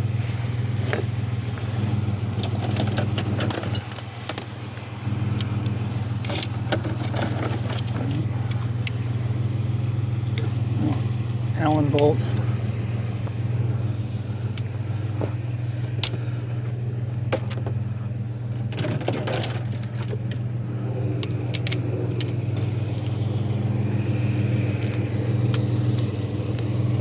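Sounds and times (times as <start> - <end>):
vehicle engine idling: 0.0 - 27.0
metallic clinks of scrap parts: 2.4 - 4.5, 6.2 - 8.7, 17.3 - 17.8, 18.5 - 20.5.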